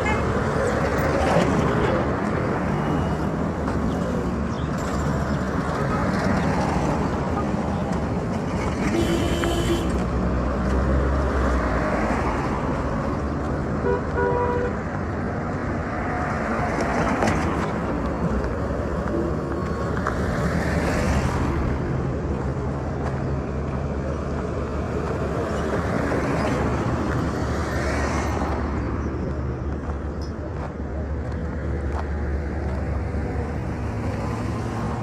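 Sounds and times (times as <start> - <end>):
road traffic rumble: 0.0 - 35.0
car horn toots: 8.9 - 10.0.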